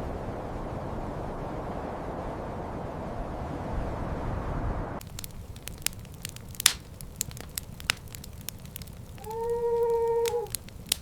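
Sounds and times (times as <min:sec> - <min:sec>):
sharp crackles and pops: 0:05.0 - 0:11.0.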